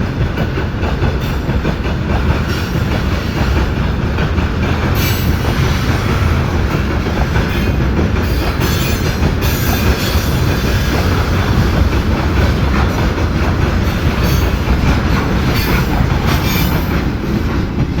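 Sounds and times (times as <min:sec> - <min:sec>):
freight train rumbling: 0:00.0 - 0:18.0
train wheel squeals: 0:04.8 - 0:11.8, 0:12.6 - 0:17.4.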